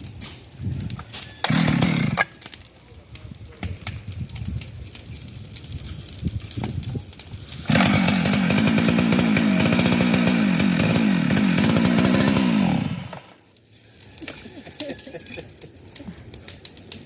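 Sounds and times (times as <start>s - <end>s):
chainsaw engine revving: 1.4s - 2.3s, 7.6s - 13.4s.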